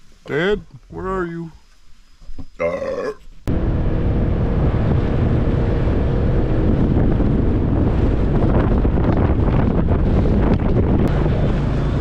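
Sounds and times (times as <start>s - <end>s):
vehicle engine running: 3.5s - 12.0s
wind buffeting microphone: 3.5s - 12.0s.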